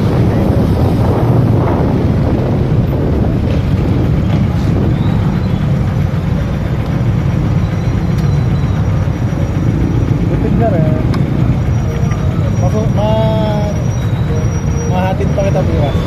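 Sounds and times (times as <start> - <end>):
wind on microphone: 0.0 - 6.5
motorcycle engine running: 0.0 - 16.0.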